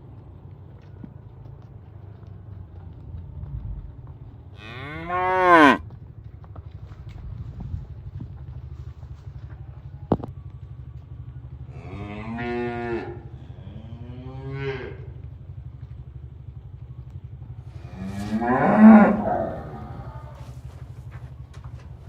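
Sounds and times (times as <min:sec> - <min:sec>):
steady low hum: 0:00.0 - 0:22.0
cattle mooing: 0:04.6 - 0:05.8, 0:11.7 - 0:15.2, 0:17.7 - 0:20.6.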